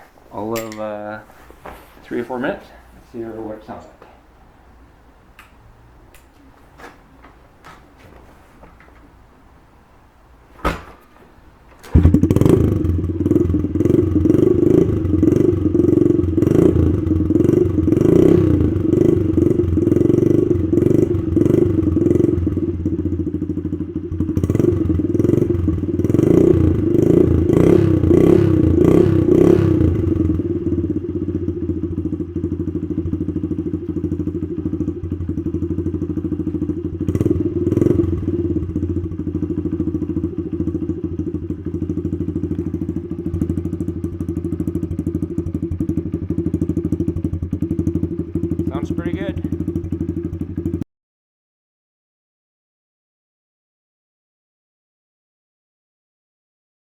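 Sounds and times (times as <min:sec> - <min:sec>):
small motorcycle engine revving: 0:11.8 - 0:50.8
engine knock: 0:11.9 - 0:13.4, 0:39.0 - 0:50.8.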